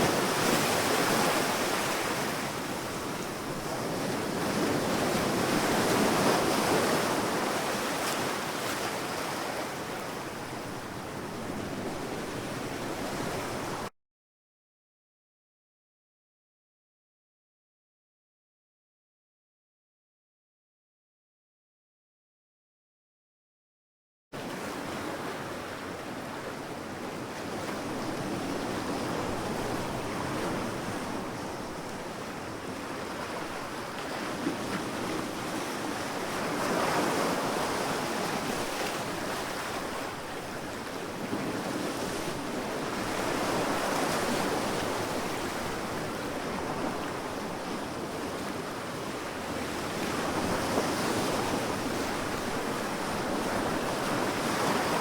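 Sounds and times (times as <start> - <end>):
waves washing onto sandy beach: 24.4 - 55.0.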